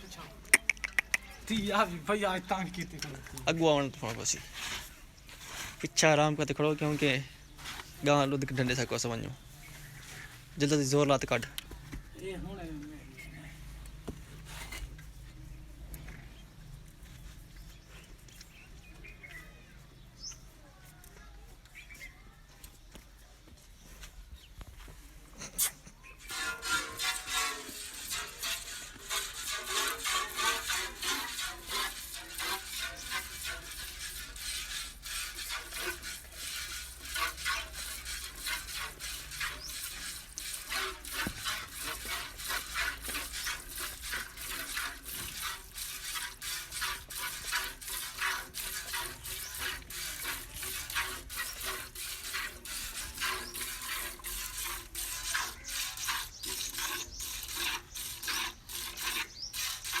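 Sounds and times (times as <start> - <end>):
milk squirting into a pail: 25.6 - 60.0.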